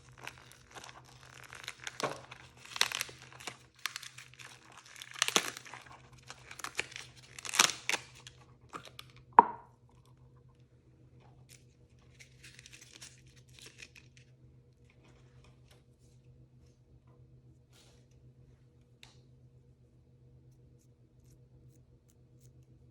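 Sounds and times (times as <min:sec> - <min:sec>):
packaging crinkled and torn: 0:00.0 - 0:09.3, 0:11.5 - 0:14.3.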